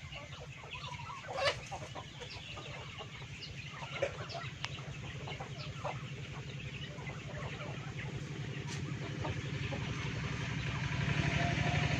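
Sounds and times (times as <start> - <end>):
chickens clucking: 0.0 - 11.9
engine throbbing: 3.1 - 11.9.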